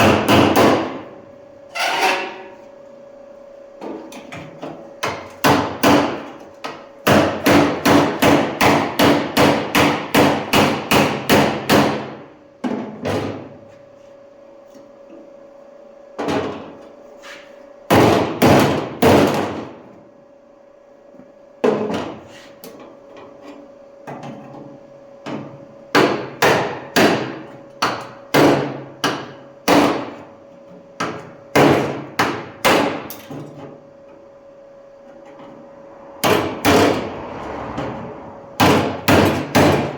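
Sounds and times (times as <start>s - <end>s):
hammer striking metal: 38.6s - 39.9s.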